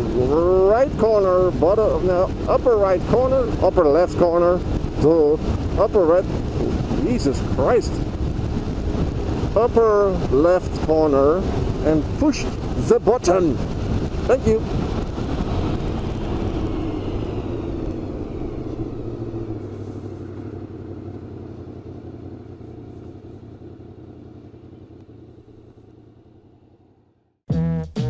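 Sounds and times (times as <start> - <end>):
motorcycle engine running: 0.0 - 27.3
music: 27.5 - 28.0.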